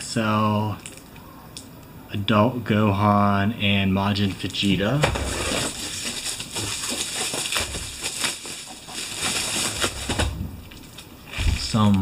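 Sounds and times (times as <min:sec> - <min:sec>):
plastic packaging crinkling: 0:04.5 - 0:11.8.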